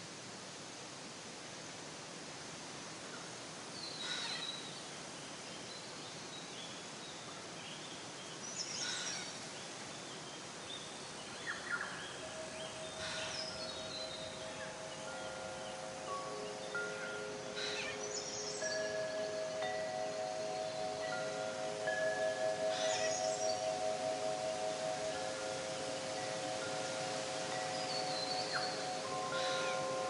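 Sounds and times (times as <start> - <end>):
outdoor ambient hiss: 0.0 - 30.0
wind chimes ringing: 11.9 - 30.0.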